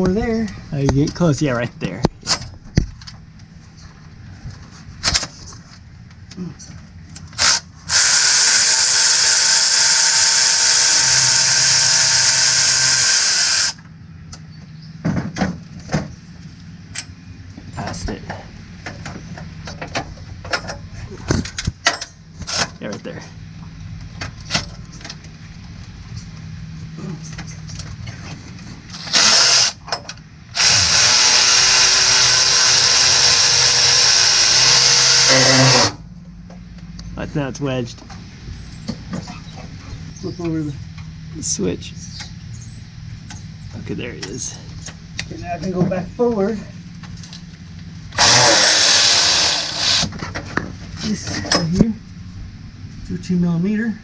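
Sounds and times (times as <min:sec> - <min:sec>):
electric ratchet whirring: 0:07.4 - 0:13.8, 0:28.9 - 0:29.8, 0:30.5 - 0:36.0, 0:48.1 - 0:50.1.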